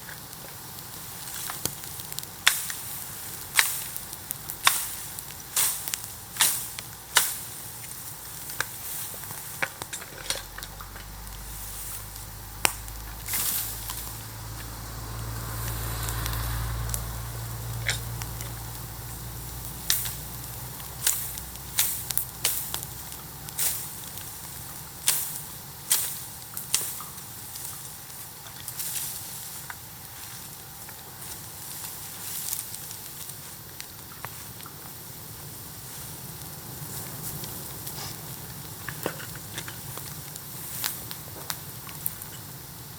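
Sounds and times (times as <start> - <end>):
bonfire crackling and popping: 0.0 - 42.9
hissing: 0.7 - 25.2
low steady rumble: 2.4 - 25.8
sharp pops: 3.5 - 19.1.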